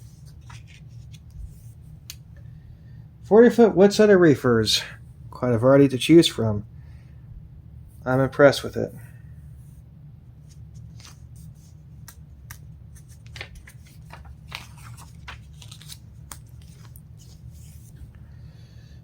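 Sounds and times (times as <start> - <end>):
paper pages rustling: 0.0 - 2.2, 10.4 - 18.2
low hum: 6.4 - 19.0.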